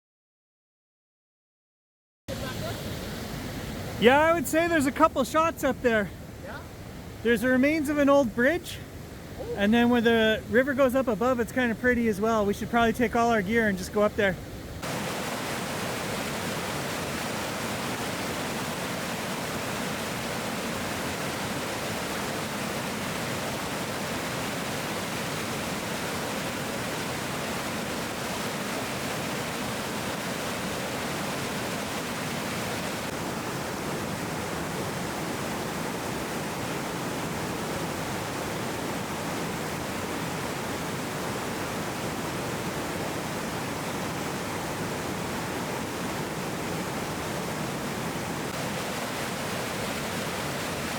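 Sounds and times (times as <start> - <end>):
waterfall rushing: 13.7 - 50.9.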